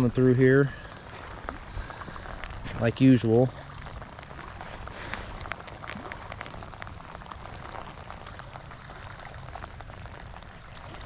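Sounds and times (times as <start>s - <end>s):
raindrops clicking sharply: 0.0s - 11.0s
steady rain falling: 0.0s - 11.0s.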